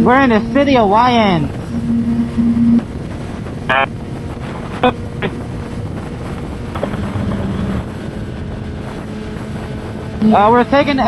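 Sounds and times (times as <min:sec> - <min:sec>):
wind rushing over microphone: 0:00.0 - 0:11.0
short blips: 0:01.6 - 0:02.9
motorcycle engine and road noise: 0:02.8 - 0:11.0.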